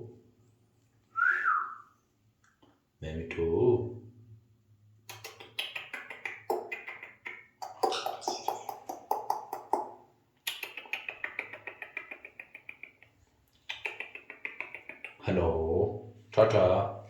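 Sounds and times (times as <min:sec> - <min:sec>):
parrot clicking chatter: 0:05.1 - 0:15.3.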